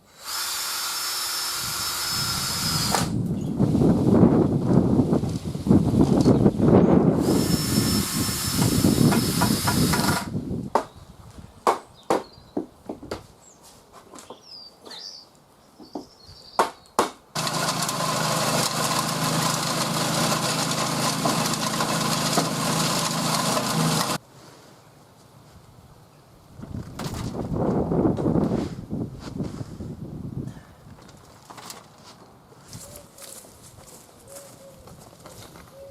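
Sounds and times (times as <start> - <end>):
faint bird chirps: 14.2 - 16.9
motor running steadily: 17.4 - 24.2.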